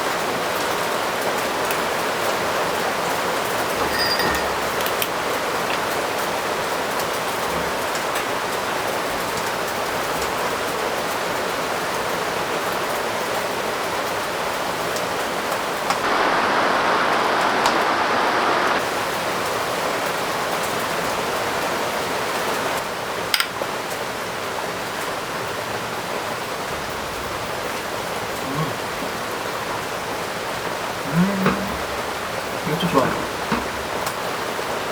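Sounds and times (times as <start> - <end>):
heavy rain falling: 0.0 - 34.9
dull rushing noise: 16.0 - 18.8.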